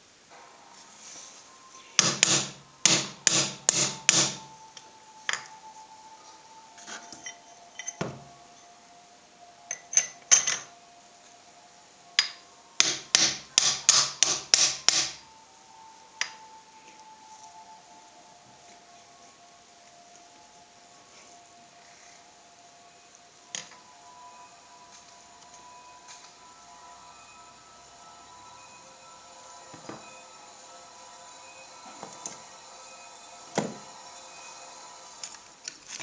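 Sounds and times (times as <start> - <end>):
faint metallic ringing: 0.0 - 36.0
hammer striking metal: 1.6 - 4.6, 12.2 - 15.3, 28.6 - 35.4.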